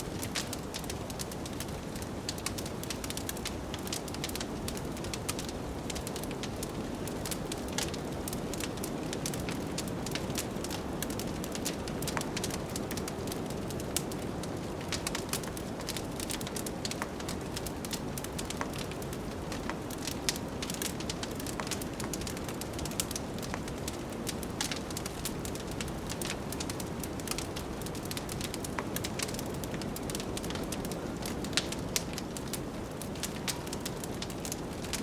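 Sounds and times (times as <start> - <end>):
wood fire crackling and popping: 0.0 - 35.0.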